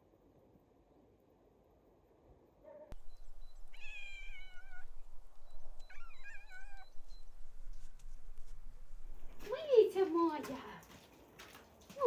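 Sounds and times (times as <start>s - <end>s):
cat meowing: 3.6s - 7.2s.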